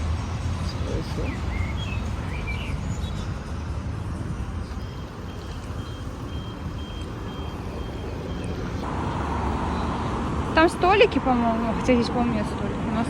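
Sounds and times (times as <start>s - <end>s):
street traffic rumbling: 0.0s - 13.0s
birds chirping: 0.4s - 12.4s
high electronic beeps: 4.8s - 8.8s.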